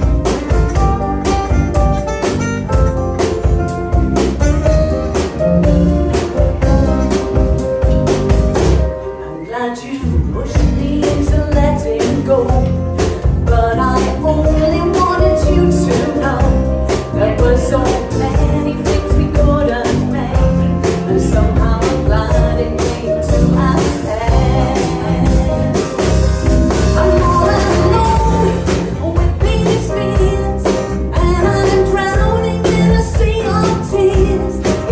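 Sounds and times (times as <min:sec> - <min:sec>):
melodic lead guitar line: 0:00.0 - 0:34.9
rock band playing slow song: 0:00.0 - 0:34.9.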